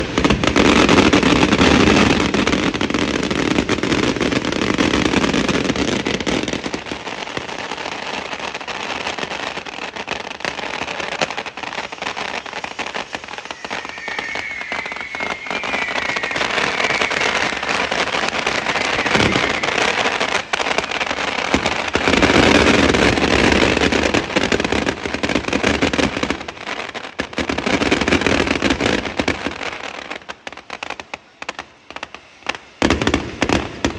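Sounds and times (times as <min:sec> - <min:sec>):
fireworks crackling and banging: 0:00.0 - 0:33.9
wavering high whistle: 0:11.9 - 0:21.0.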